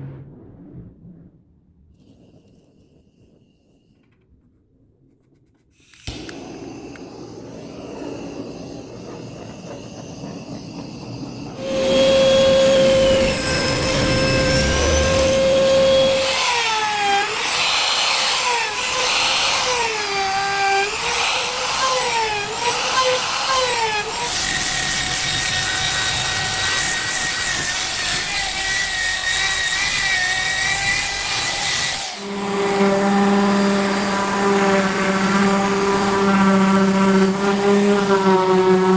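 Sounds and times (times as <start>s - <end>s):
woodworking power tools cutting: 5.9s - 7.2s, 11.3s - 38.9s
lower-pitched machine: 5.9s - 38.9s.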